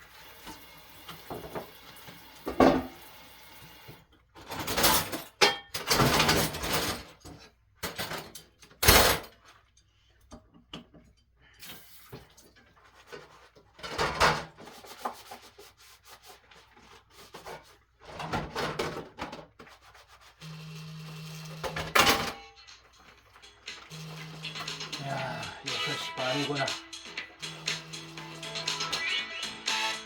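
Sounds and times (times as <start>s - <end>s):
dishes scrubbed by hand: 14.5s - 18.1s.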